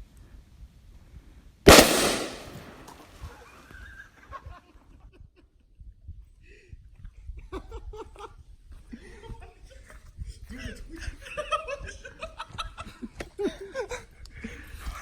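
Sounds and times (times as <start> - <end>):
bottle bursting with loud bang: 1.7 - 3.0.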